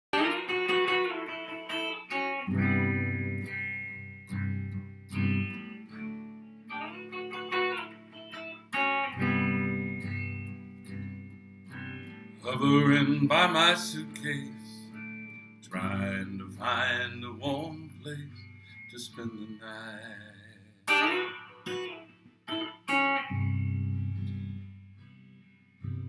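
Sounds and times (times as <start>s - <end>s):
guitar chords ringing: 0.1s - 26.0s.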